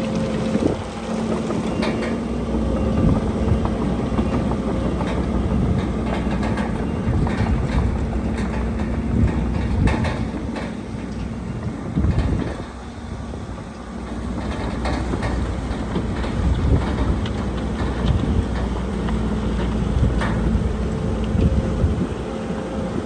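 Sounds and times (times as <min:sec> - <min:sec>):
diesel engine rumble: 0:00.0 - 0:23.0.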